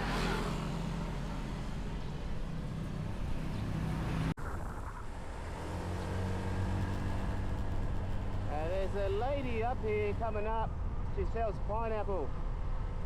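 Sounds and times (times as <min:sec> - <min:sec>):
road and wind noise: 0:00.0 - 0:13.0
motorbike engine running: 0:05.8 - 0:10.2.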